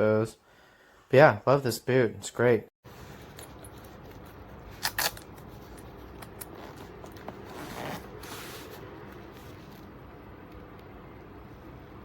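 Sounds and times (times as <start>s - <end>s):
soft rustling: 6.5s - 10.0s.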